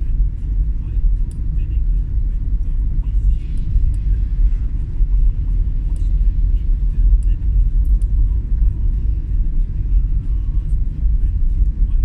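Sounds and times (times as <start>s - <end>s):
road and wind noise: 0.0s - 12.0s
vehicle rumble: 0.0s - 12.0s.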